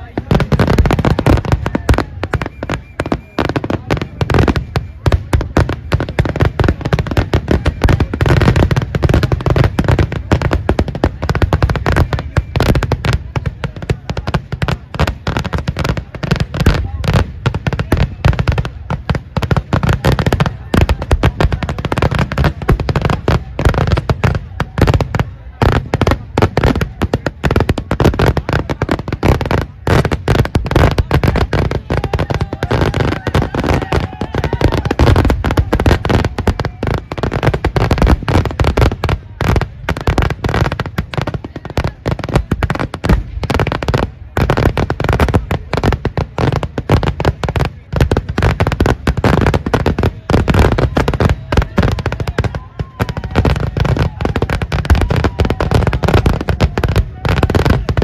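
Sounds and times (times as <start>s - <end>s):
firecrackers banging in a barrage: 0.0s - 58.0s.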